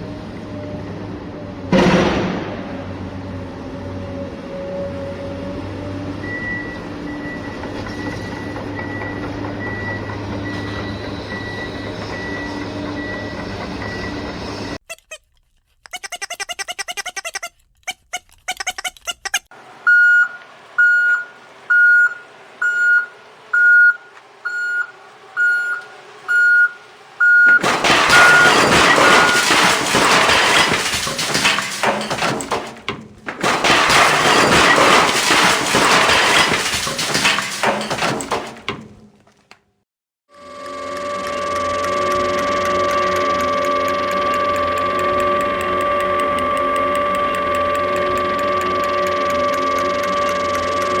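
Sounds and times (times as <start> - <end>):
loud harsh rushing noise: 1.7 - 3.7
short electronic beeps: 19.9 - 29.4.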